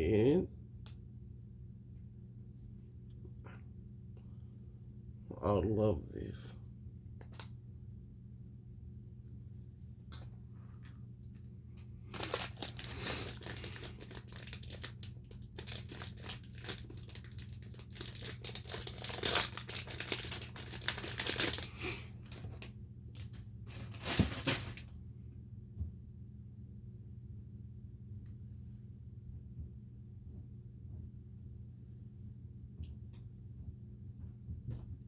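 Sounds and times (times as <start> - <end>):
packaging crinkling and tearing: 11.2 - 24.8
loud ripping of packaging: 12.1 - 24.8.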